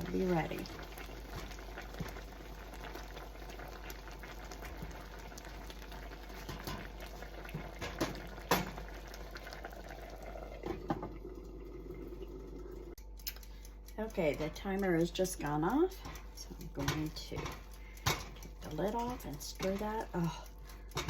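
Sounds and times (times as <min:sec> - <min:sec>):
food bubbling in a covered pan: 0:00.0 - 0:13.1.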